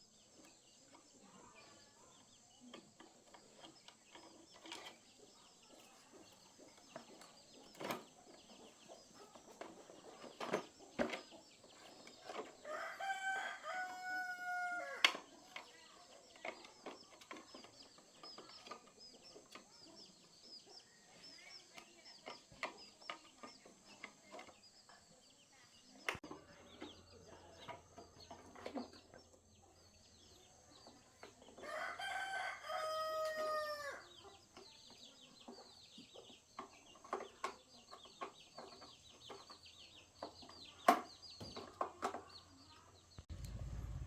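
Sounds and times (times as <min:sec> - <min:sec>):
rooster crowing: 0:12.7 - 0:15.1, 0:31.6 - 0:34.1.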